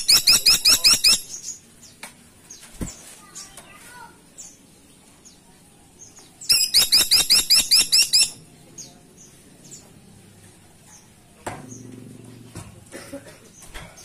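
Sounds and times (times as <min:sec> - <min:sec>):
woodpecker calling sharp high notes: 0:00.0 - 0:01.4, 0:06.5 - 0:08.4
faint bird chirps: 0:00.0 - 0:12.0.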